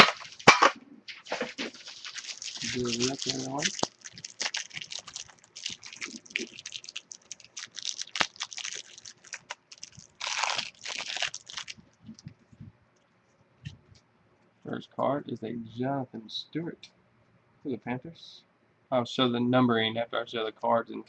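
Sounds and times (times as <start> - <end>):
wrapper tearing and crinkling: 0.0 - 11.8.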